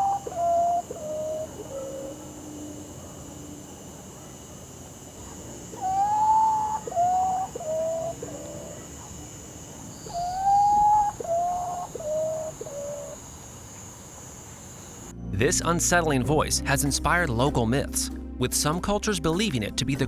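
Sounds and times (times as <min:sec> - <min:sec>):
bird mournful call: 0:00.0 - 0:15.0
high insect drone: 0:00.0 - 0:18.4.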